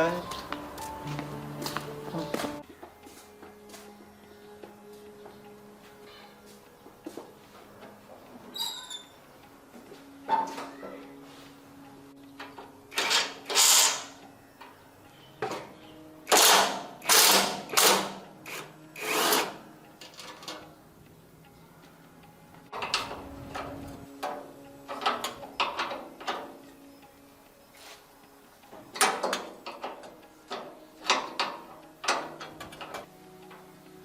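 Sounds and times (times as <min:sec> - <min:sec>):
handheld power tool bursts: 0:12.9 - 0:14.2, 0:16.3 - 0:19.6.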